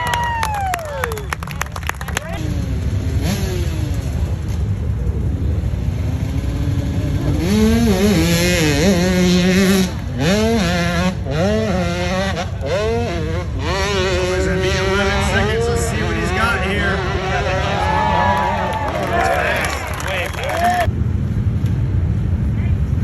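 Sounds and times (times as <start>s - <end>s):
motorcycle engine revving high: 2.4s - 20.9s.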